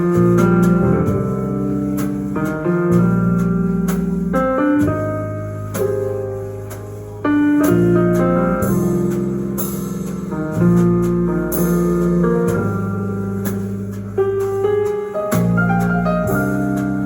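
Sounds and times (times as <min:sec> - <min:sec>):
instrumental music over speakers: 0:00.0 - 0:17.0.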